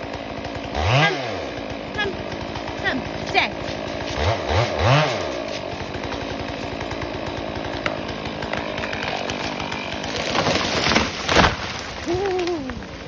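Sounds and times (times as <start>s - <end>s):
chainsaw engine running: 0.0s - 13.0s.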